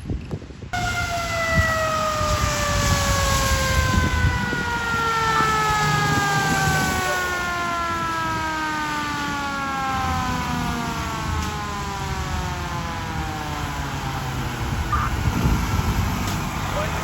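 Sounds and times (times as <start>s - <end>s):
mechanical siren winding down: 0.8s - 15.4s
truck engine rumble: 0.8s - 17.0s.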